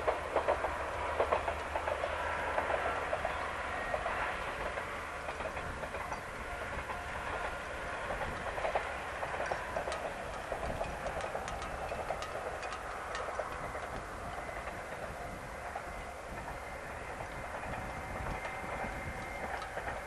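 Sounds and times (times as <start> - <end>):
diesel railcar running past: 0.0 - 20.0
wheels clicking over rail joints: 0.0 - 20.0
sharp ticks: 8.4 - 14.1.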